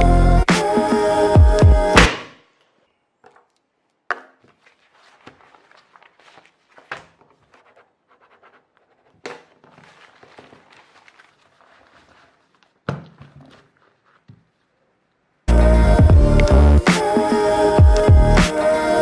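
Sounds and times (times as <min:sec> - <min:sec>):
electronic music with heavy bass: 0:00.0 - 0:02.1, 0:15.5 - 0:18.9.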